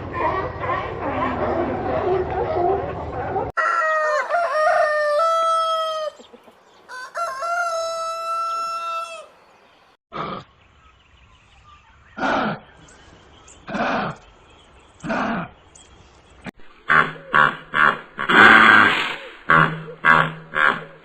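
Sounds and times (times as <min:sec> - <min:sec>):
rooster crowing: 0:03.6 - 0:06.2, 0:06.9 - 0:09.4.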